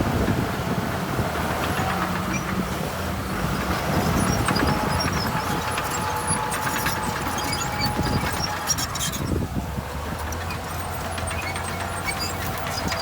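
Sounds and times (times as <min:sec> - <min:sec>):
diesel engine rumble: 0:00.0 - 0:13.0
light rattles: 0:03.5 - 0:13.0.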